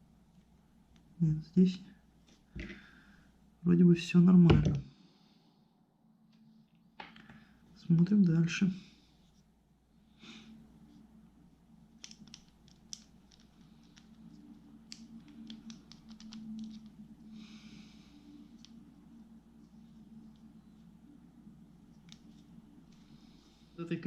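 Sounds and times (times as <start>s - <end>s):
low steady hum: 0.0s - 24.0s
small reel parts clicking: 12.0s - 17.0s.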